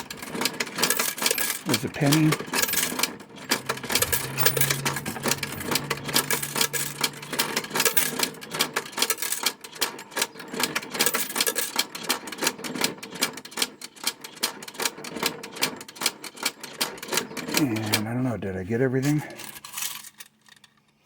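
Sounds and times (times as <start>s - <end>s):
coin mechanism clicking and clattering: 0.0s - 18.0s, 19.2s - 20.7s
low hum: 1.7s - 9.1s.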